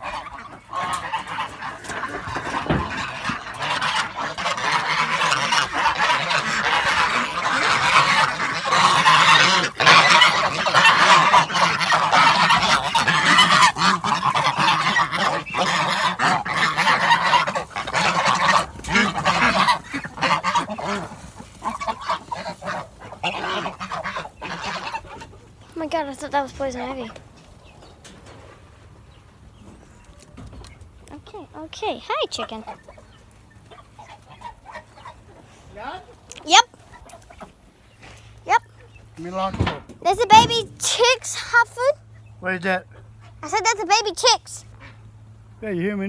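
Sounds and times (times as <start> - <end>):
geese honking: 0.0 - 45.6.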